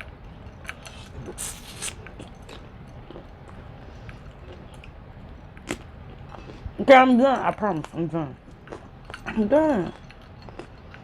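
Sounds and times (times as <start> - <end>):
person chewing: 0.0 - 6.8, 8.4 - 11.0
mouth clicks: 0.7 - 2.6.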